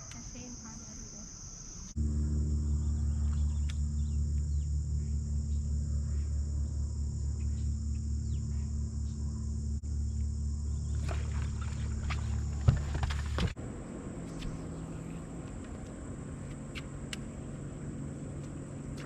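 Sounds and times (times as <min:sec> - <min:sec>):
high insect buzz: 0:00.0 - 0:13.5
boat motor humming: 0:00.0 - 0:19.0
small birds chirping: 0:02.6 - 0:19.0.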